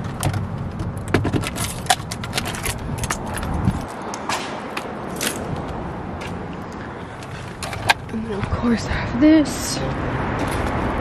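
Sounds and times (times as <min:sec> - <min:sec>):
stroller frame clicks and knocks: 0:00.0 - 0:05.6.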